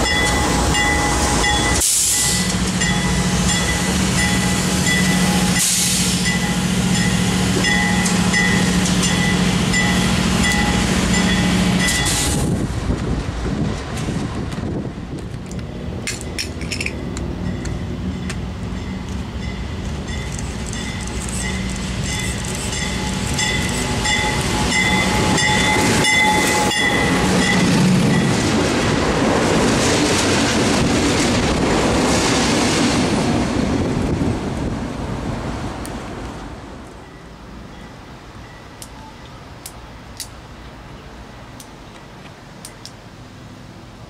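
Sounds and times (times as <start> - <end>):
diesel locomotive engine: 0.0 - 44.0
high ringing tones: 16.8 - 28.4.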